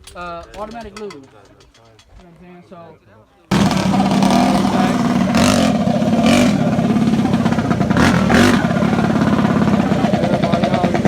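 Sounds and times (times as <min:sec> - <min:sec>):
mini bike engines revving: 0:03.5 - 0:11.0.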